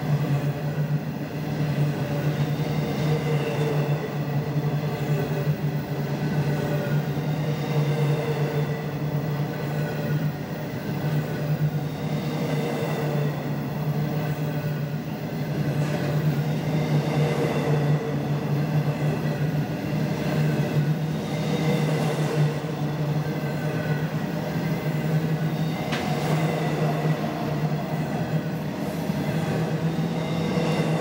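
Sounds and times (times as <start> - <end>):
freight train rumbling past: 0.0 - 31.0.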